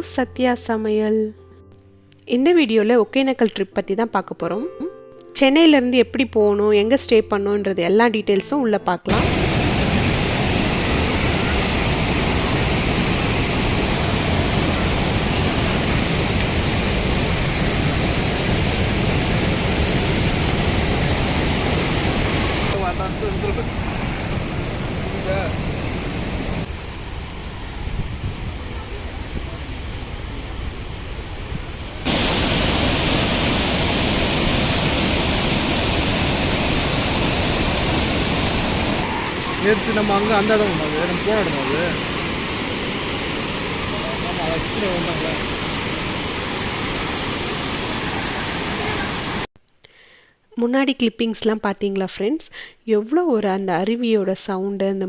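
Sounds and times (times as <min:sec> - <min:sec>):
waterfall rushing: 0:09.1 - 0:49.5.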